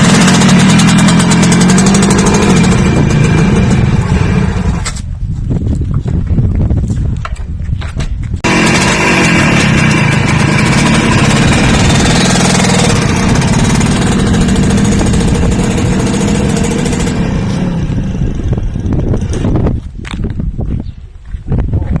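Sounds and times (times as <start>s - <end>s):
engine idling and revving: 0.0s - 5.0s, 8.4s - 19.9s.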